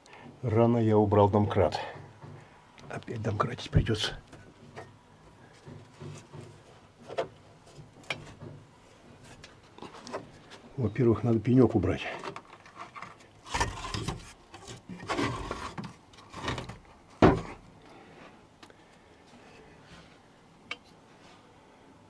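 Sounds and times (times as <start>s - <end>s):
wooden block scraping: 11.9s - 17.6s.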